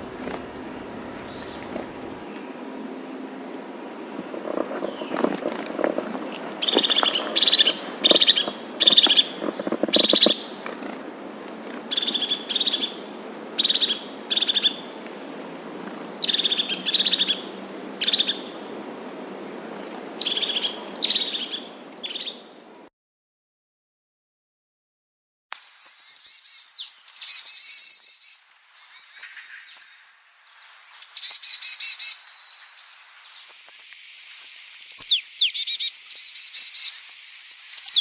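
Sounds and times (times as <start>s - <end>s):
bird calling: 0.0s - 22.6s, 34.9s - 37.0s.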